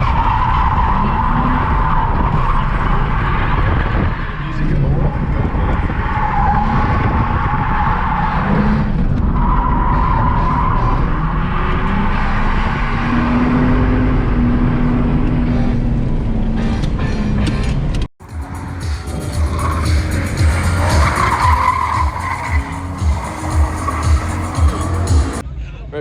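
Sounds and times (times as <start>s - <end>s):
engine revving high: 9.8s - 25.4s
tyres squealing: 18.3s - 25.4s.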